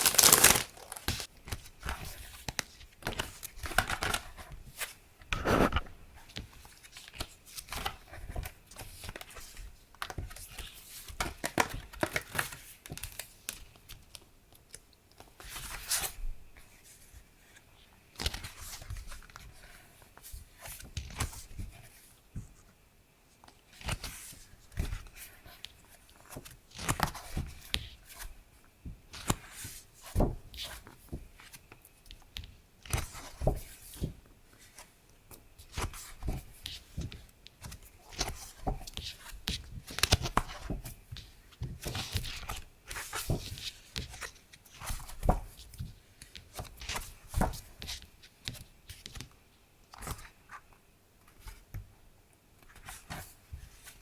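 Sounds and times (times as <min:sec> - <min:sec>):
packaging rustling and crackling: 0:00.0 - 0:01.3.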